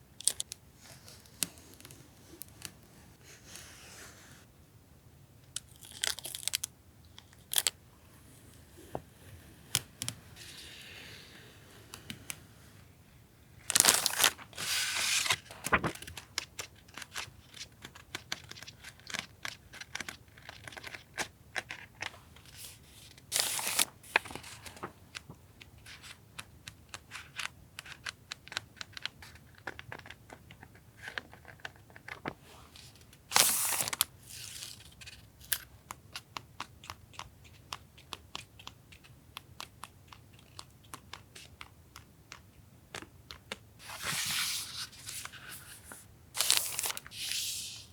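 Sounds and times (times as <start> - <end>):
paper and plastic crinkling: 13.7 - 22.8, 43.8 - 47.9.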